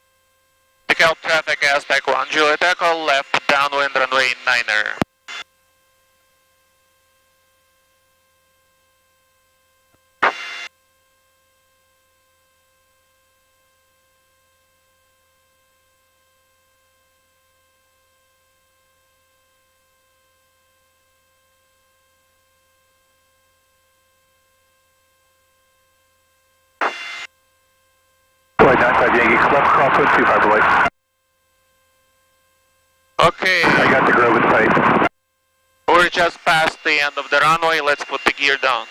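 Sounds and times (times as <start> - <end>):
radio noise bursts: 0.9 - 5.4, 10.2 - 10.6, 26.8 - 27.3, 28.6 - 30.9, 33.2 - 35.1, 35.9 - 38.9.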